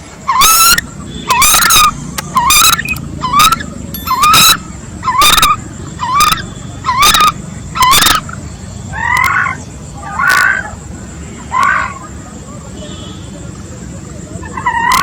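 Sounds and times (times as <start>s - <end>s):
coot calling: 0.3s - 10.8s.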